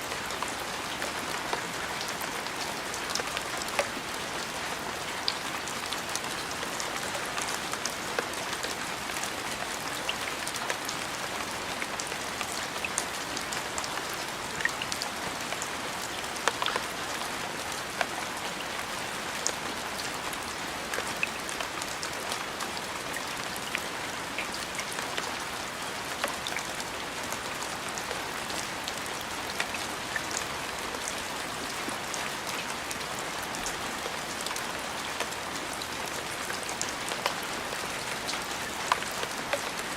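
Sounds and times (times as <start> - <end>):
rain falling: 0.0 - 39.9
raindrops striking a surface: 0.0 - 39.9.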